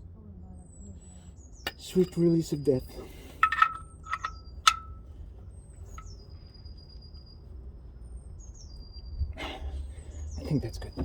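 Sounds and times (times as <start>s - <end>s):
hand tool clinking on metal: 3.4s - 5.0s.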